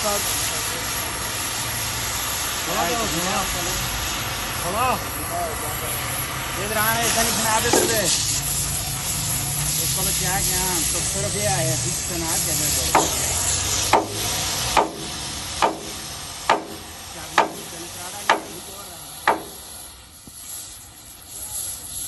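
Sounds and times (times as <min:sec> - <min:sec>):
hiss: 0:00.0 - 0:22.0
sharp knocks: 0:12.9 - 0:13.2, 0:13.9 - 0:17.6, 0:18.3 - 0:18.6, 0:19.3 - 0:19.6.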